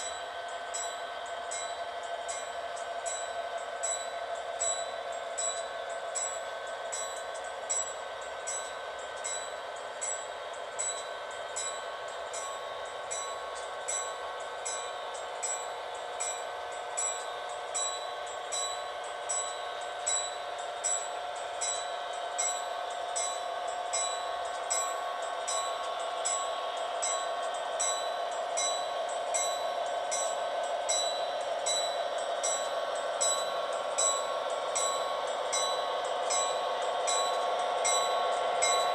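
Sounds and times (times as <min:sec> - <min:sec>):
crossing bell ringing: 0:17.0 - 0:38.9
train passing: 0:23.1 - 0:38.9.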